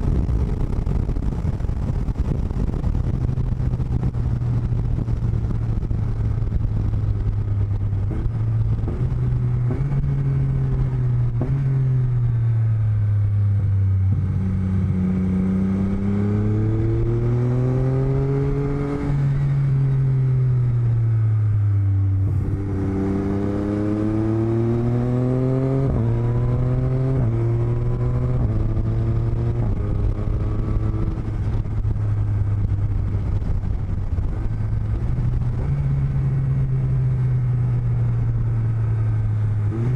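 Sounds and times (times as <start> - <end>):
steady rushing noise: 0.0 - 13.0, 20.9 - 37.4
motorcycle engine revving: 0.0 - 39.9.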